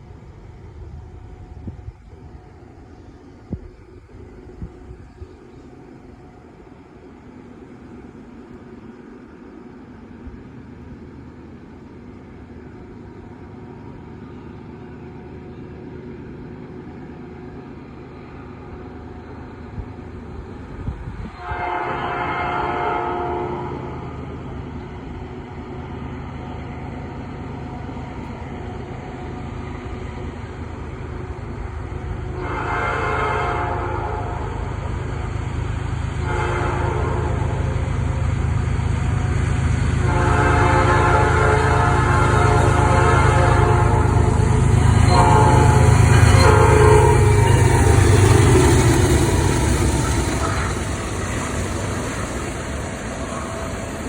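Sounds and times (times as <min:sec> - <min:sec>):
diesel locomotives rumbling: 0:00.0 - 0:54.0
rattle of passing train cars: 0:00.0 - 0:54.0
locomotive air horn: 0:21.3 - 0:24.0, 0:32.3 - 0:34.6, 0:36.2 - 0:37.7, 0:40.0 - 0:51.7.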